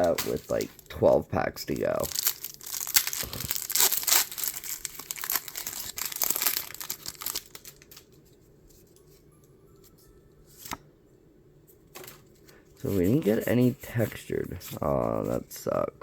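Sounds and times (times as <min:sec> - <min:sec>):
faint handling sounds: 0:00.0 - 0:02.3, 0:03.0 - 0:10.9, 0:11.6 - 0:15.9
card packaging crinkling and tearing: 0:00.0 - 0:08.2.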